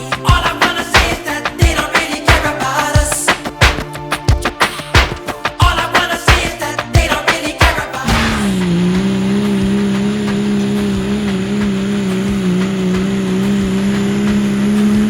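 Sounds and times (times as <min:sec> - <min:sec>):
diesel engine droning at high revs: 0:08.1 - 0:15.0.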